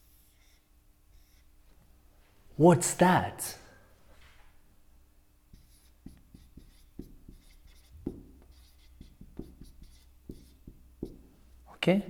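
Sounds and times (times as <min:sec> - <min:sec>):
pen scratching on paper: 0:00.0 - 0:01.5, 0:05.5 - 0:11.2.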